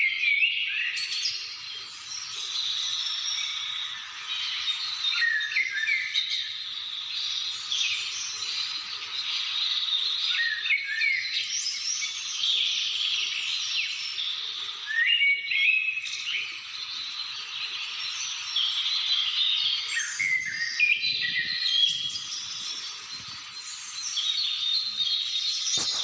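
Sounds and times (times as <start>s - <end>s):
songbirds chirping and whistling: 0.0s - 26.0s
steady background hiss: 17.8s - 26.0s.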